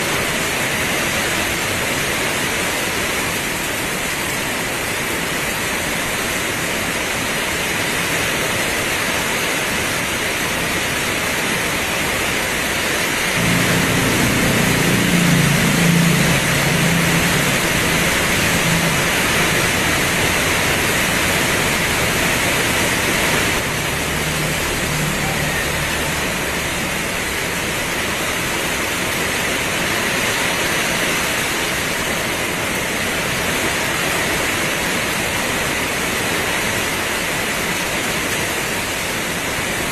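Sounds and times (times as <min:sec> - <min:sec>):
heavy rain pouring: 0:00.0 - 0:39.9
low hum: 0:13.4 - 0:28.5.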